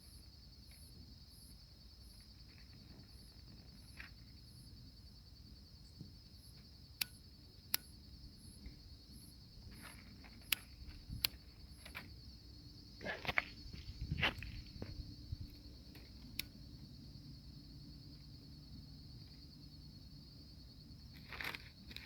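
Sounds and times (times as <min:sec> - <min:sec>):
crickets trilling: 0:00.0 - 0:22.0
sharp clicks: 0:07.0 - 0:08.0, 0:09.8 - 0:12.1, 0:15.5 - 0:16.6.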